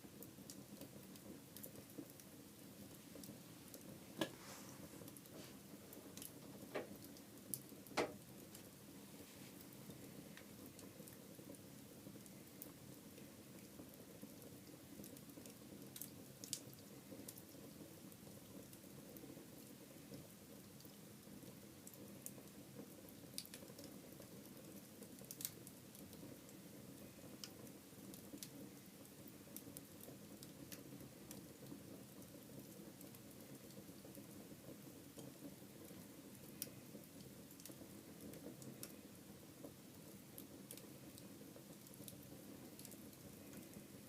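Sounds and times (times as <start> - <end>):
fire crackles and pops: 0.0 - 44.0
wood fire burning: 0.0 - 44.0.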